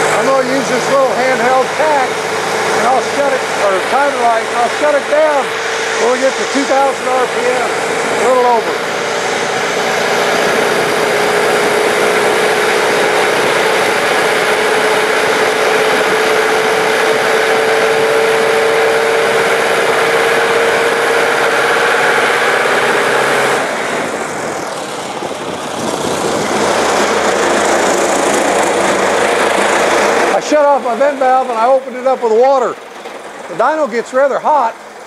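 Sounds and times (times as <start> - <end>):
engine running at full throttle: 0.0 - 35.0
steady noise: 0.0 - 35.0.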